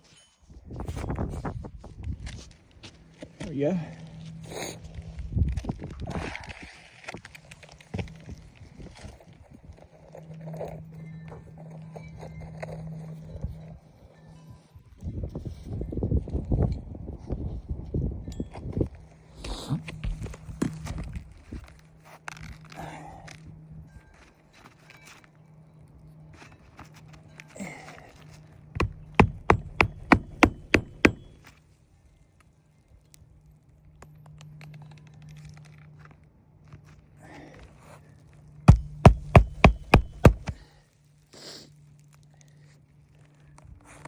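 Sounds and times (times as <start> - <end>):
hammer striking nails: 28.8 - 31.5, 38.7 - 40.6
shingle scraping: 28.8 - 31.5, 38.7 - 40.6.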